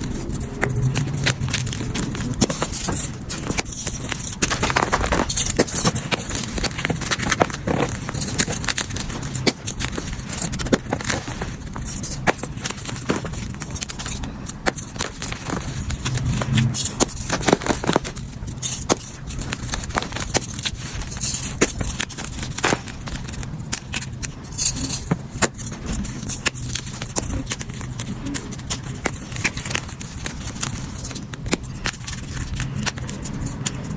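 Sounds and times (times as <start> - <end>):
chalk crushing and crunching: 0.0 - 33.9.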